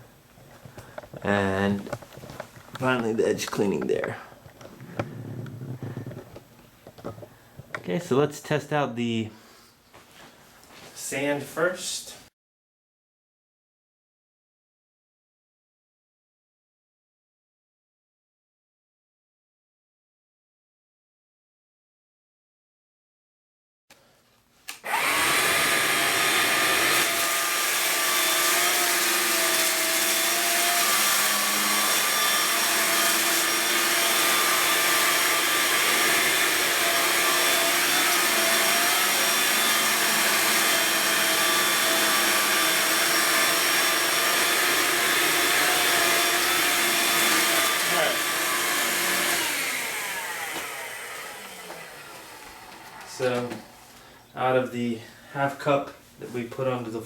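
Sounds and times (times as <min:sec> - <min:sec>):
stick vacuum running: 0:24.8 - 0:53.8.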